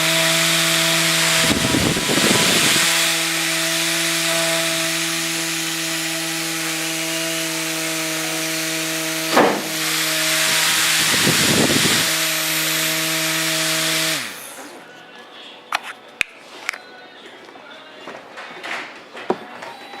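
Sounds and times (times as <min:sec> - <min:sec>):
electric fan humming: 0:00.0 - 0:15.0
short knock: 0:09.3 - 0:09.7.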